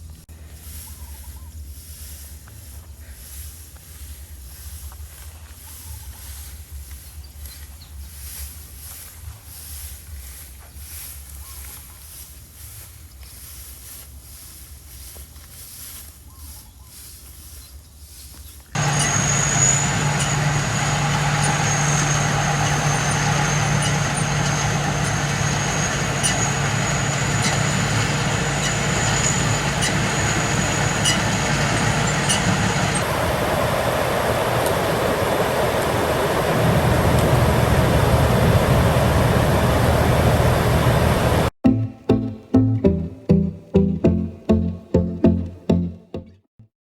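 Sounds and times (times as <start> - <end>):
outdoor noise: 0.0 - 41.5
engine running with whine: 18.8 - 41.5.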